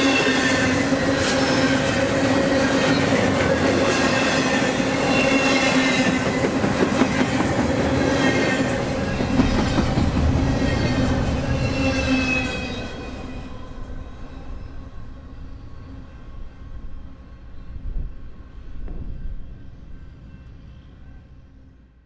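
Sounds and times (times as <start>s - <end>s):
train wheels rumbling on rails: 0.0s - 20.8s
high wheel squealing: 8.0s - 17.2s.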